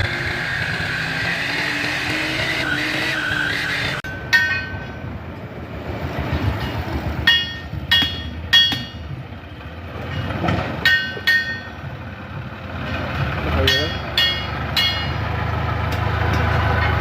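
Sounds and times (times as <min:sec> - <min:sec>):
low engine rumble: 0:00.0 - 0:17.0
metal clanks ringing: 0:04.0 - 0:05.1, 0:06.5 - 0:09.2, 0:10.0 - 0:11.9, 0:12.8 - 0:15.2.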